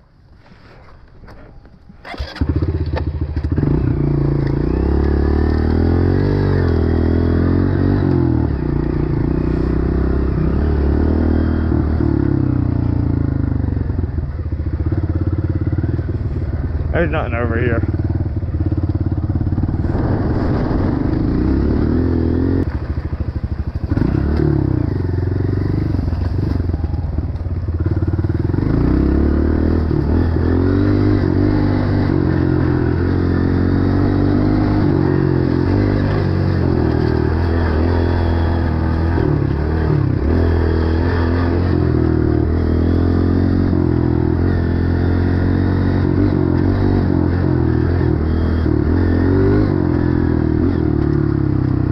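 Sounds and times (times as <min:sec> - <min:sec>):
dirt bike engine revving: 0:02.0 - 0:23.2, 0:23.8 - 0:51.9.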